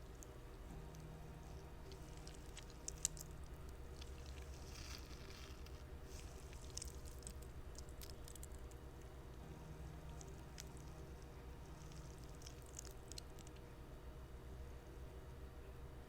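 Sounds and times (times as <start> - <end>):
small clicks and crackles: 0.0 - 9.2, 9.9 - 13.7
steady low hum: 0.0 - 16.0
fidget toy squishing: 1.8 - 8.8, 10.0 - 13.6.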